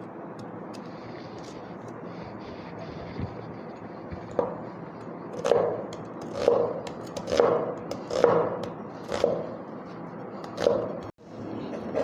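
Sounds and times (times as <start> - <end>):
knife cutting on cutting board: 5.4 - 9.5.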